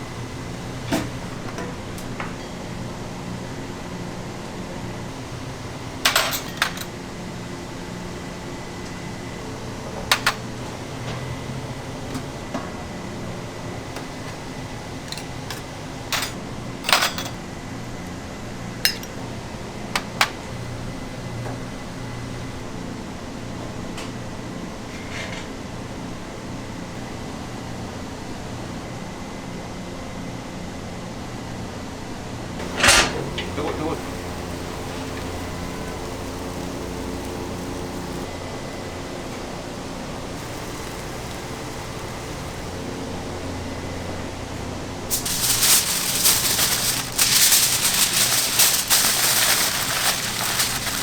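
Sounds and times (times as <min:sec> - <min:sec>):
kitchen ventilation hum: 0:00.0 - 0:51.0
kitchenware clinking: 0:06.1 - 0:07.0, 0:15.0 - 0:17.4, 0:18.9 - 0:19.2, 0:32.6 - 0:38.3, 0:45.1 - 0:51.0.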